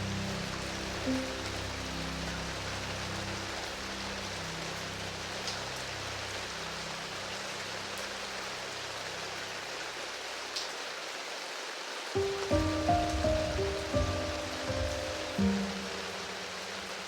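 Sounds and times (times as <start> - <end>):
steady rain: 0.0 - 17.0
low piano notes: 12.2 - 17.0.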